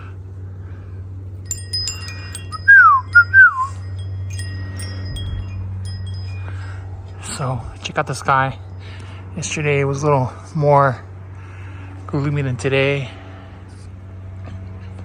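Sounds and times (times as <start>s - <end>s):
steady low hum: 1.4s - 7.7s
wind chimes tinkling: 1.4s - 9.8s
falling whistle-like tones: 2.5s - 3.8s.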